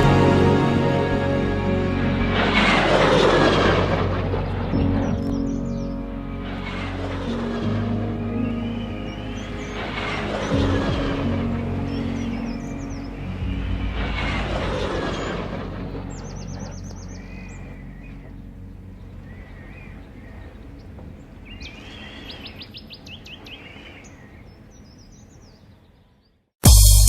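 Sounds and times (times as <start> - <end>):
jet engine rumble: 0.0 - 21.0
small birds chirping: 15.2 - 26.4.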